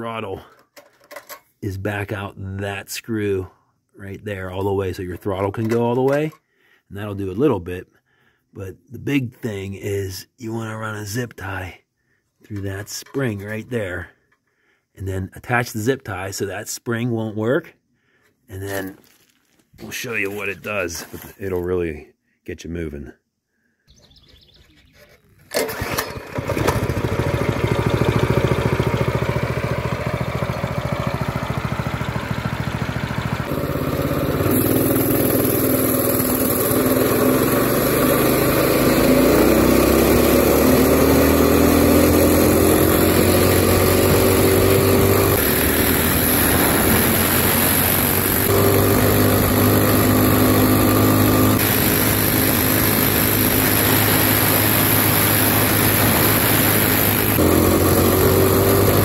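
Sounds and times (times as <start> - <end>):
minibike engine revving: 25.5 - 59.0.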